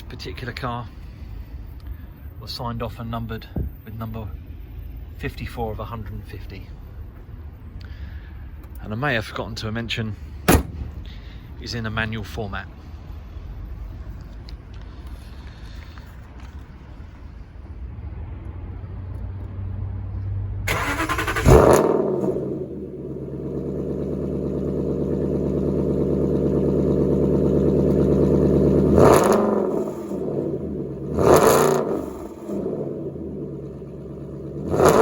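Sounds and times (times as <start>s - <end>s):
car engine revving: 10.4s - 11.1s, 20.7s - 35.0s.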